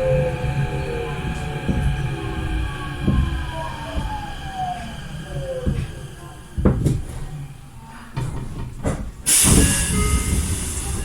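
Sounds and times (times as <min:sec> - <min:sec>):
train motor whine: 0:00.0 - 0:07.9
knocks and clunks in train car: 0:00.0 - 0:11.0
compressed air hiss: 0:09.3 - 0:11.0.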